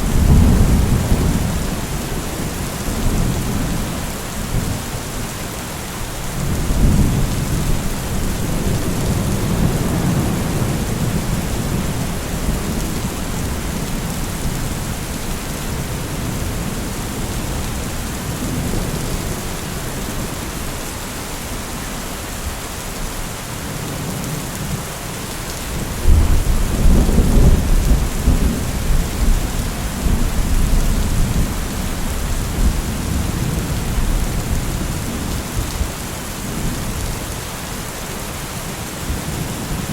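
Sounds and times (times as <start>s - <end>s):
rolling thunder: 0.0s - 4.8s, 26.0s - 35.9s
heavy rain: 0.0s - 39.9s.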